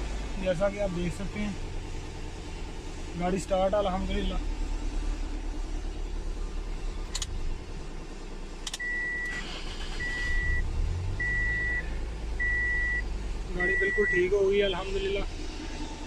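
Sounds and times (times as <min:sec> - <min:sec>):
car engine idling: 0:00.0 - 0:16.0
sharp clicks: 0:07.1 - 0:07.4, 0:08.6 - 0:08.9
high electronic beep: 0:10.0 - 0:11.8, 0:13.6 - 0:14.3.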